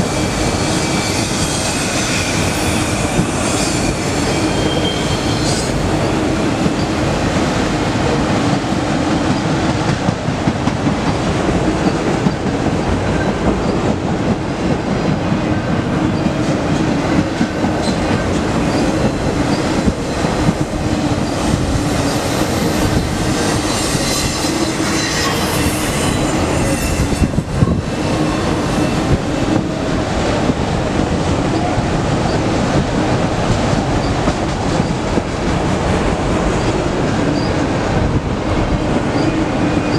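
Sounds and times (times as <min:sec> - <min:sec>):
train wheels rumbling on rail: 0:00.0 - 0:39.9
high wheel squeals: 0:00.6 - 0:05.8.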